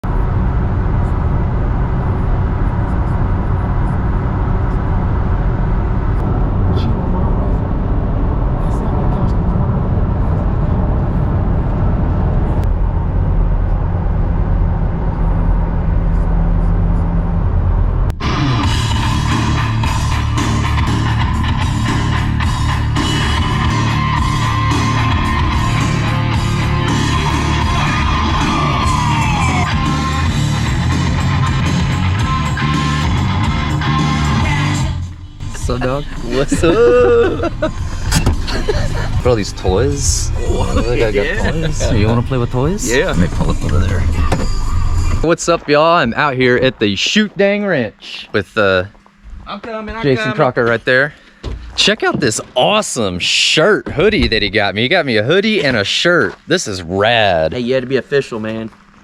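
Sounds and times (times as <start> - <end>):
road noise: 0.0 - 59.0
vehicle engine rumble: 0.0 - 59.0
rock music: 18.2 - 45.3.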